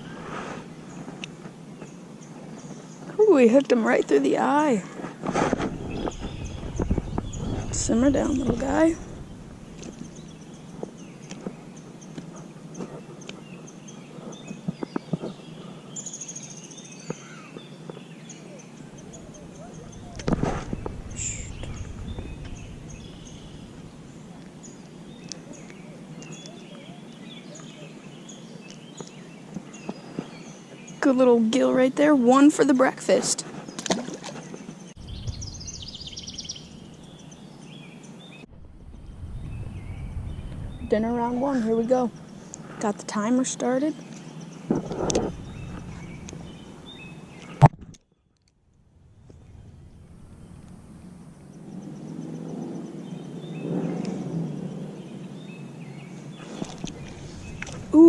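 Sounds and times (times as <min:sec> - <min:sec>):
birds chirping: 0:00.0 - 0:58.0
outdoor background noise: 0:00.0 - 0:58.0
songbird singing: 0:00.0 - 0:58.0
buzzy bird trill: 0:16.0 - 0:28.9.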